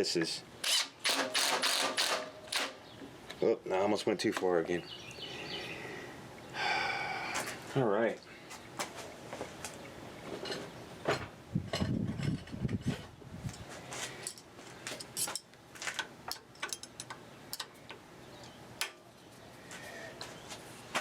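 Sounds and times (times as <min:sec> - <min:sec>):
tools and metal parts clattering: 0:10.3 - 0:13.0, 0:14.2 - 0:17.8.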